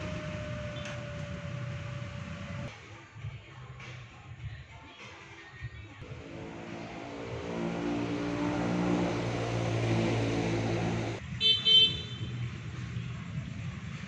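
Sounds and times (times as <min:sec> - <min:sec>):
vehicle engine running: 0:00.0 - 0:02.7, 0:06.0 - 0:11.4.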